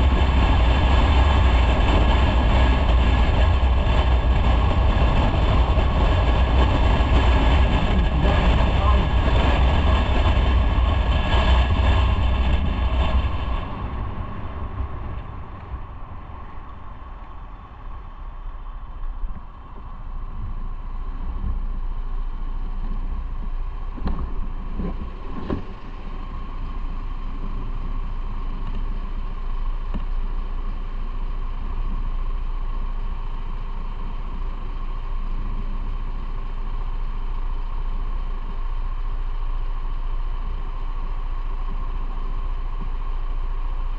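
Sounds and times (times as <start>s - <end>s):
wind noise: 0.0s - 30.3s
motorcycle engine running: 0.0s - 43.9s.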